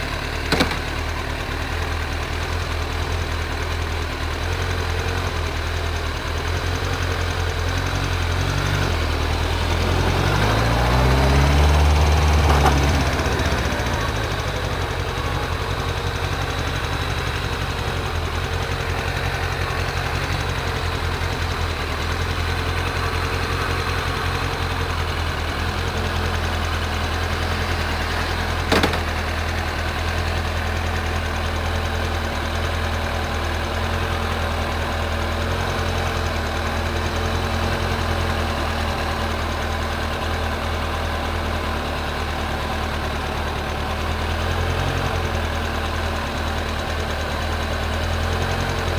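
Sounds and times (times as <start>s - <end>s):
engine running steadily: 0.0s - 48.9s
sharp click: 0.5s - 1.0s, 28.7s - 29.2s.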